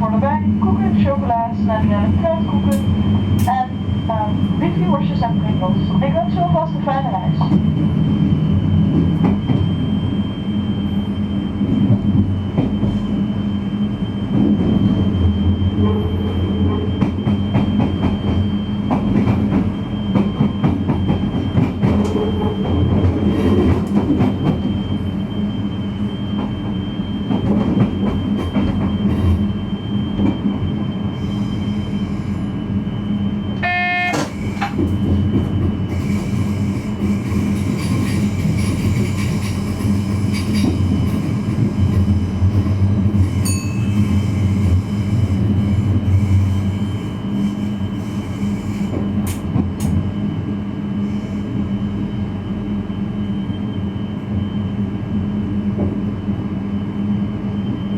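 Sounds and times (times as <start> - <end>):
train traction hum: 0.0 - 57.9
brief pitched tone: 33.6 - 34.4.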